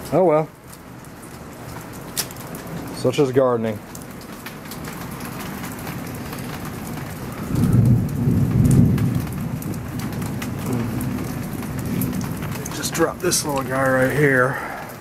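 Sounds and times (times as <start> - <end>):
steady rain falling: 0.0 - 15.0
drops ticking: 3.8 - 15.0
low rumble of thunder: 4.9 - 15.0.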